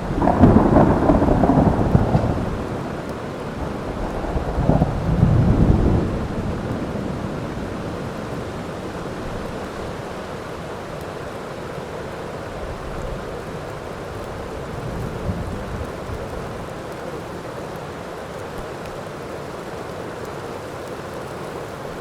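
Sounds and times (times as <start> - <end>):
thunder rumble: 0.0 - 9.8, 14.2 - 16.8
heavy rain: 0.0 - 22.0.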